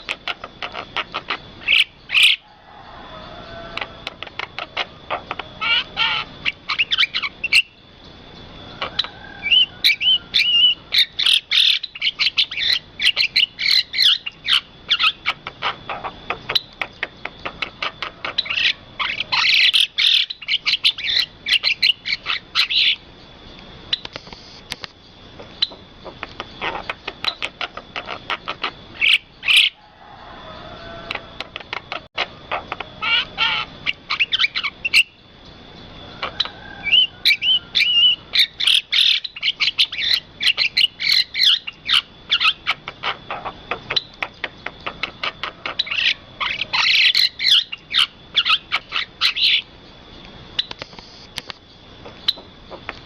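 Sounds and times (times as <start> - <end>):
birds chirping and chattering: 0.0 - 53.0
thin steady high tone: 45.3 - 52.8.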